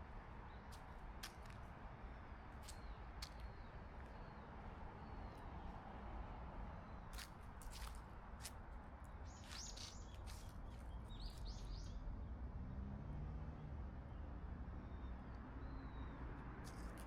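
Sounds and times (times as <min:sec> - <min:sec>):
small birds chirping: 0:09.1 - 0:12.0.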